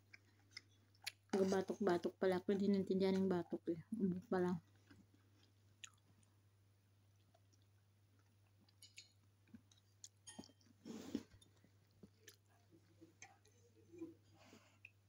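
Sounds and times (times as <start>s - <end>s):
person chewing rice: 0.0s - 1.9s, 4.6s - 6.4s, 7.0s - 13.8s.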